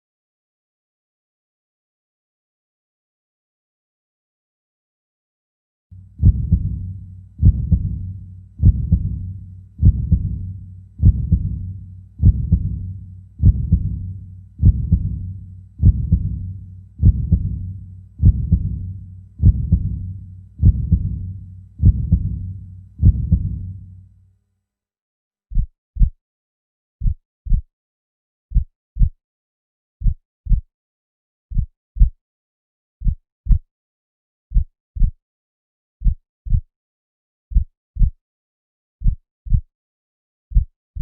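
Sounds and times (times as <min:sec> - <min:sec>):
human heartbeat thuds: 0:06.0 - 0:23.9, 0:25.5 - 0:26.2, 0:27.0 - 0:27.7, 0:28.5 - 0:29.2, 0:30.0 - 0:30.7, 0:31.5 - 0:32.2, 0:33.0 - 0:33.7, 0:34.5 - 0:35.2, 0:36.0 - 0:36.7, 0:37.5 - 0:38.2, 0:39.0 - 0:39.7, 0:40.5 - 0:41.0
steady low hum: 0:06.0 - 0:24.2.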